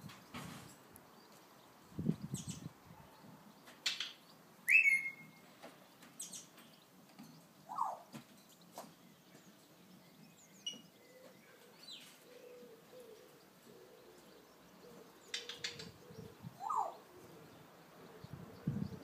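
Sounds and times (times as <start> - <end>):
bird whistles and chirps: 4.7 - 5.4.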